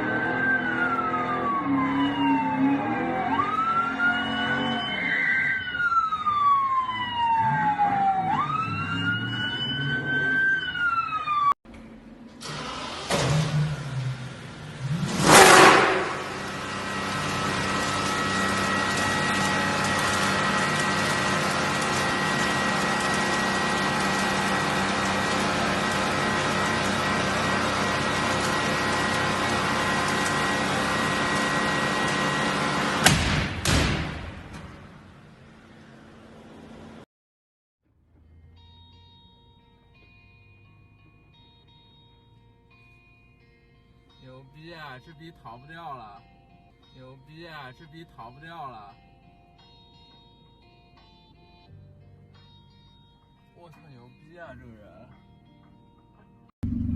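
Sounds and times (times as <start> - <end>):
emergency siren wailing: 0.0 - 11.6, 15.4 - 33.0
vehicle engine rumble: 10.8 - 37.0, 56.6 - 56.9
car engine idling: 56.6 - 56.9.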